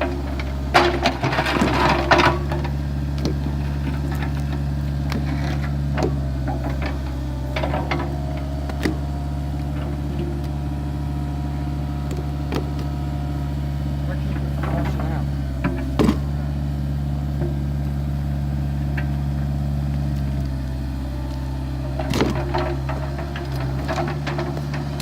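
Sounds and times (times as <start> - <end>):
loud clatter: 0.0 - 10.2, 21.9 - 25.0
metal clanks and knocks: 0.0 - 17.8, 21.8 - 25.0
excavator diesel engine running: 0.0 - 25.0.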